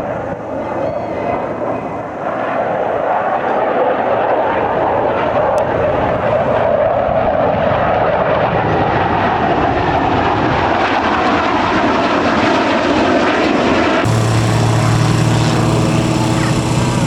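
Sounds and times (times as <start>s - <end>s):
aircraft engine flying past: 0.0s - 17.0s
low engine drone: 14.0s - 17.0s.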